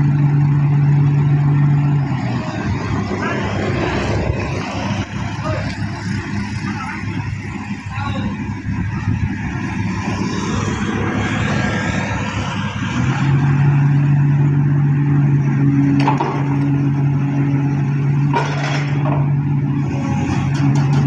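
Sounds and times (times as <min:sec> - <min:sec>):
diesel engine drone: 0:00.0 - 0:21.0.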